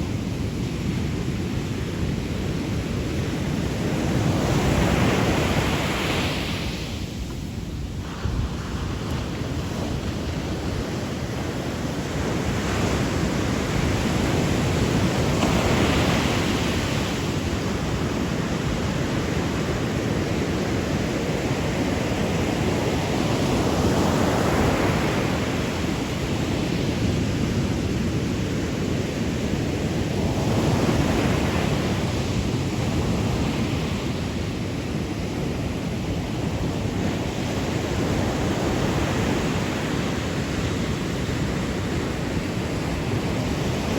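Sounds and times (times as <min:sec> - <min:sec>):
sea waves breaking: 0:00.0 - 0:43.9.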